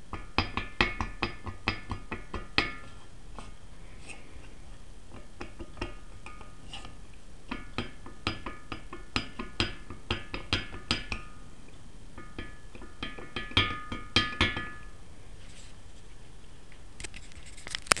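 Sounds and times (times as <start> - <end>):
piston knocking metallic clinks: 7.5 - 11.4, 12.2 - 14.9.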